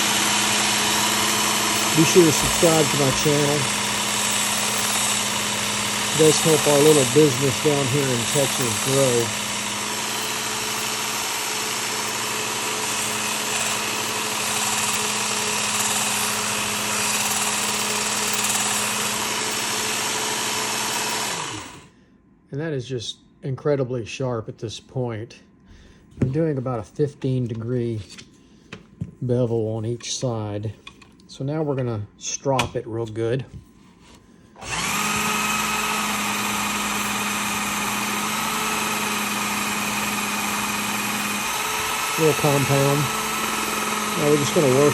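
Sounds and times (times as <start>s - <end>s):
knife blade grinding on belt: 0.0s - 21.8s
belt sharpener motor hum: 0.0s - 21.9s, 34.6s - 44.9s.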